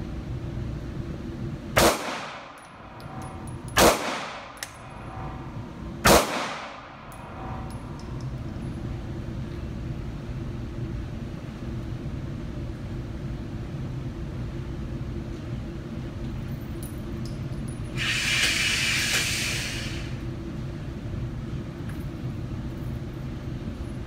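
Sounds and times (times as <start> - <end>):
ventilation rumble: 0.0 - 24.0
loud hissing rush: 18.0 - 20.2.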